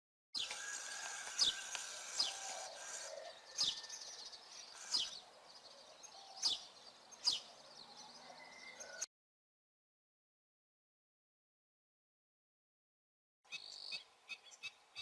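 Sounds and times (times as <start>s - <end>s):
songbird call notes: 0.4s - 9.0s, 13.5s - 15.0s.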